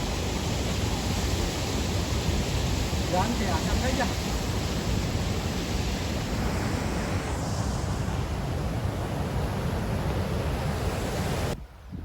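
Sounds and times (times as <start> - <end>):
fast-flowing river water: 0.0 - 7.4
wind buffeting microphone: 0.0 - 12.0.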